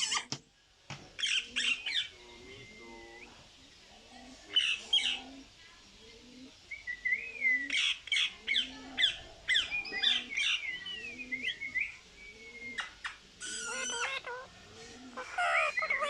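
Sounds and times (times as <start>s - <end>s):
parrot calls and chirps: 0.0s - 0.3s, 1.2s - 3.3s, 4.5s - 5.4s, 6.8s - 16.0s.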